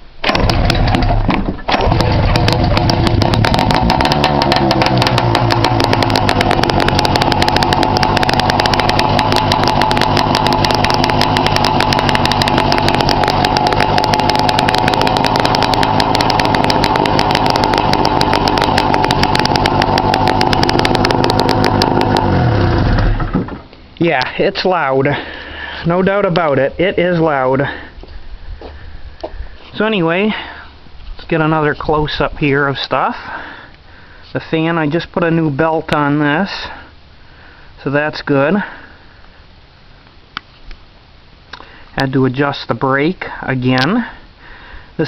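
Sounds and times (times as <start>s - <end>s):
snowmobile engine popping: 0.2s - 24.3s.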